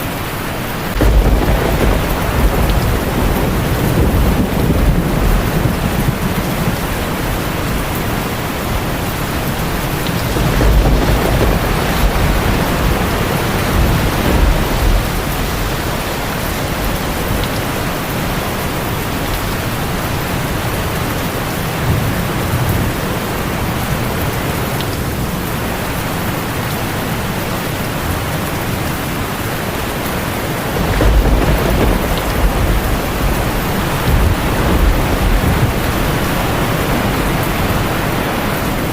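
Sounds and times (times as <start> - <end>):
heavy rain on a tin roof: 0.0 - 38.9
thunder rolling: 0.8 - 21.0, 29.7 - 38.9.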